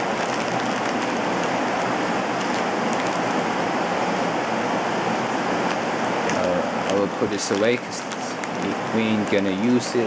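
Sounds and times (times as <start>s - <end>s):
plastic bag crinkling: 0.0s - 3.4s, 6.3s - 8.8s.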